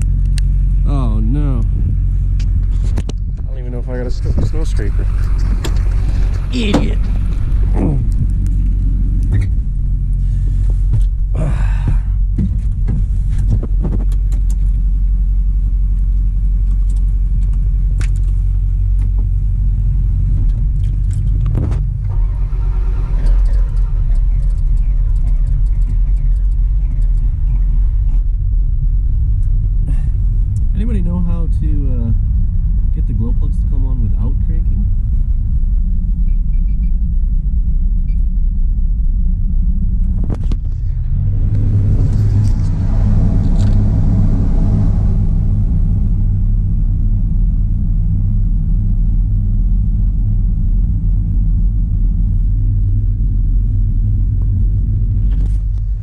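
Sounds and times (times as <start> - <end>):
diesel engine rumbling: 0.0 - 56.0.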